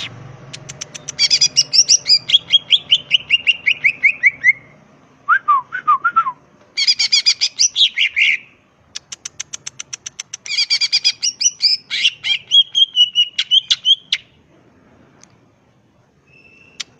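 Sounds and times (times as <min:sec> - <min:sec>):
bird singing fast varied song: 0:00.0 - 0:04.8, 0:06.8 - 0:08.5, 0:09.6 - 0:14.4, 0:16.2 - 0:16.9.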